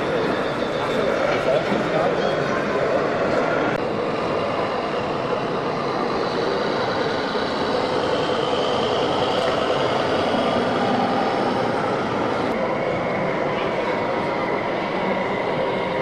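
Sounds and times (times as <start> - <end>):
busy hall crowd noise: 0.0 - 16.0.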